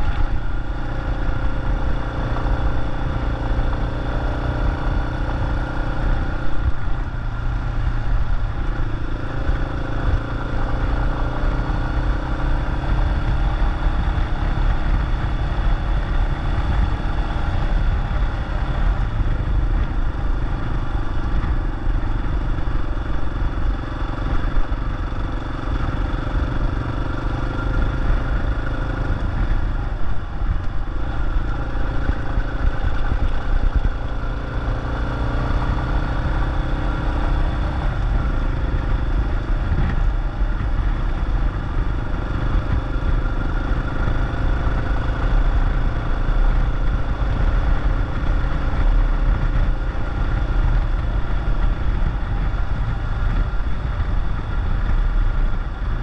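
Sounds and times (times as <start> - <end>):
motorcycle engine running: 0.0 - 56.0
wind rumble on microphone: 0.0 - 56.0.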